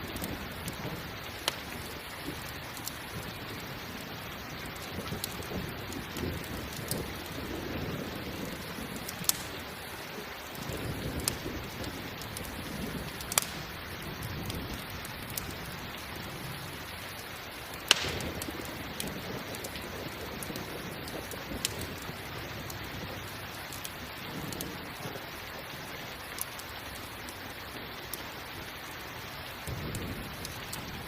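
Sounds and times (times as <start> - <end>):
campfire crackling: 0.0 - 31.0
rain hiss: 0.0 - 31.0
sharp wood pops: 9.2 - 9.5, 13.3 - 13.6, 17.9 - 18.6.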